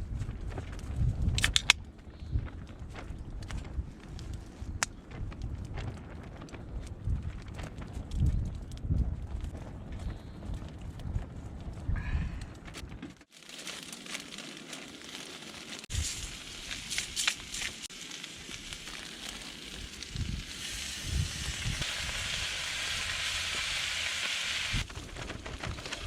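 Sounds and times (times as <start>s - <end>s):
campfire crackles: 0.1s - 26.0s
food sizzling on a grill: 15.0s - 24.9s.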